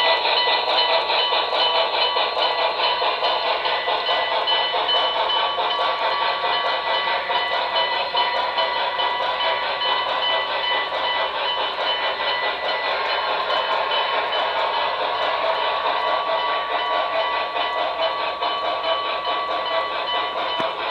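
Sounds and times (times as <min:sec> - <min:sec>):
model steam locomotive sounds: 0:00.0 - 0:20.9.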